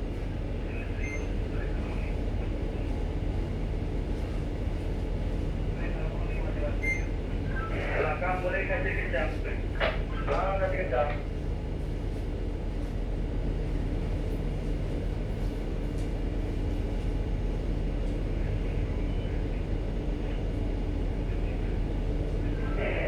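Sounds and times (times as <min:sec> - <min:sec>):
ship engines droning: 0:16.2 - 0:23.0.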